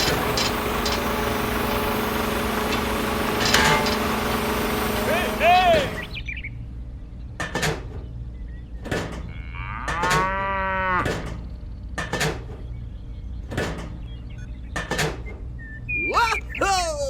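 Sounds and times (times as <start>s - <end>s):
steady low hum: 0.0s - 16.6s
cow mooing: 9.2s - 11.2s.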